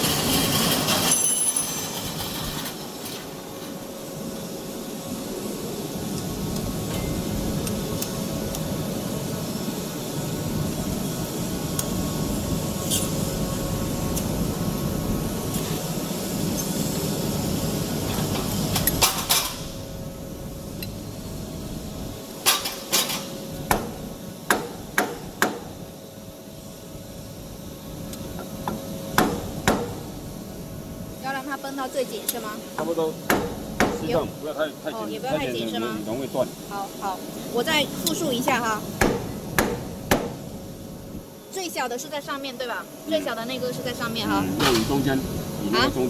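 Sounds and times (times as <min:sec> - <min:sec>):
sharp metal knocks: 0:22.5 - 0:25.8, 0:28.6 - 0:30.2, 0:32.8 - 0:34.2, 0:39.0 - 0:40.6.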